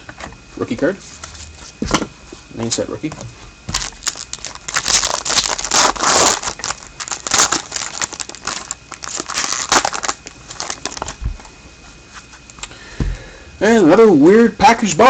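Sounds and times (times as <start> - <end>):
plastic packaging crinkling: 3.7 - 11.5.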